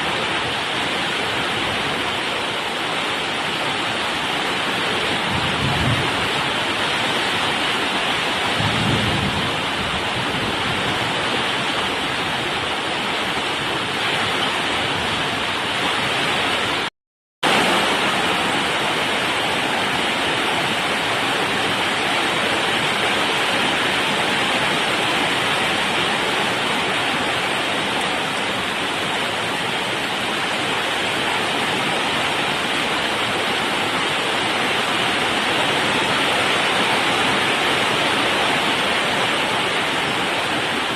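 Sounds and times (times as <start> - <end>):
heavy rain pouring: 0.0 - 40.9
low thunder rumble: 8.5 - 11.4.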